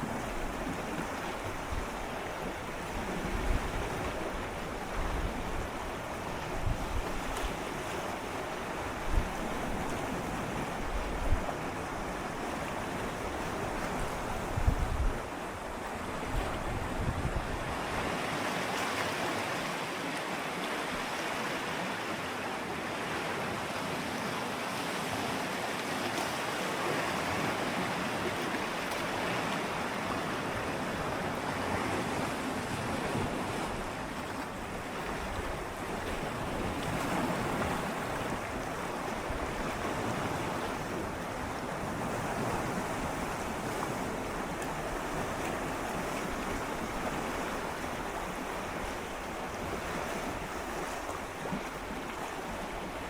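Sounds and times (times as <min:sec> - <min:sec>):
wind on microphone: 0:00.0 - 0:08.1, 0:08.8 - 0:18.2
waves lapping against rocks: 0:00.0 - 0:53.0.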